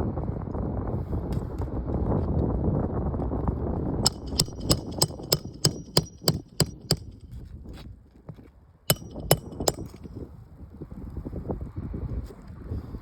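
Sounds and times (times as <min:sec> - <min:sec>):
hammer striking roofing nails: 0:04.1 - 0:07.2, 0:08.9 - 0:10.1.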